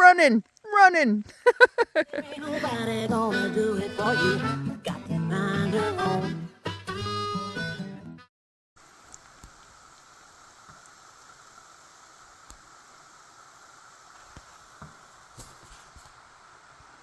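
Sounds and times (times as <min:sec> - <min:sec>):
rain hiss: 0:00.5 - 0:02.8, 0:08.8 - 0:17.0.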